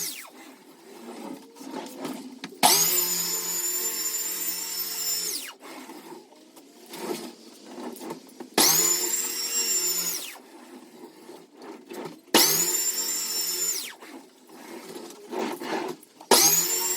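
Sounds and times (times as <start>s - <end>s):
power tool motor bursts: 0.0s - 0.3s, 2.6s - 5.6s, 8.6s - 10.4s, 12.3s - 14.0s, 16.3s - 16.9s.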